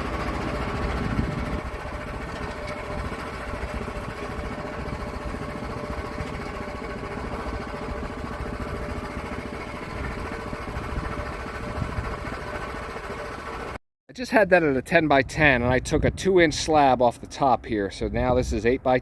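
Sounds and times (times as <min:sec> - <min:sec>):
small engine idling: 0:00.0 - 0:13.8.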